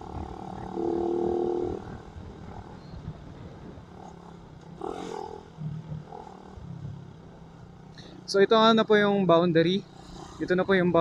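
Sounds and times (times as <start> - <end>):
wind rumble on microphone: 0.0 - 4.9
motorcycle engine running: 0.0 - 8.4.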